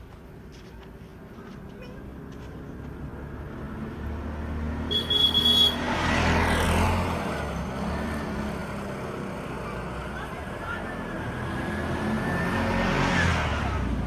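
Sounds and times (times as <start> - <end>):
short high-pitched horn: 4.9 - 5.8.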